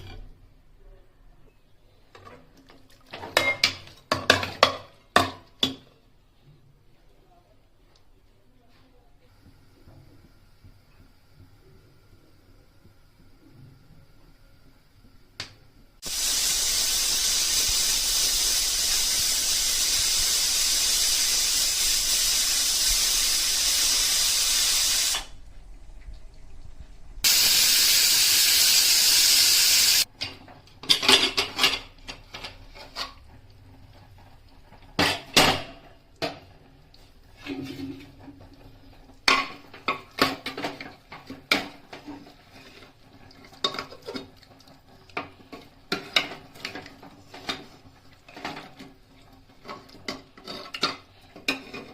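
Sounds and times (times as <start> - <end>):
utensils and cookware clinking: 2.1 - 5.9, 30.0 - 33.3, 39.2 - 44.4, 49.6 - 51.9
brighter hiss: 16.0 - 25.4, 27.2 - 30.1
loud steady hiss: 16.0 - 25.4, 27.2 - 30.1.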